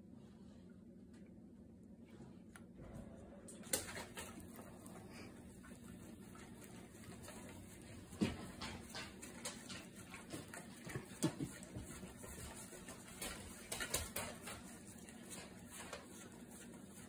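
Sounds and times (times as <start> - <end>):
dog licking a plate: 3.6 - 17.0.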